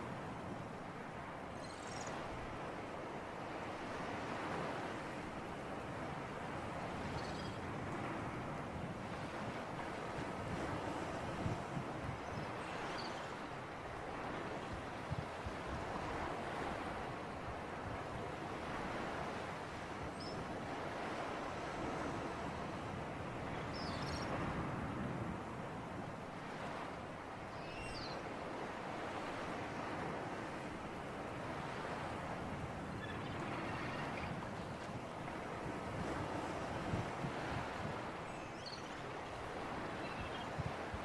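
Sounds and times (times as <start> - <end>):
wind: 0.0 - 41.0
waves washing: 7.6 - 27.5.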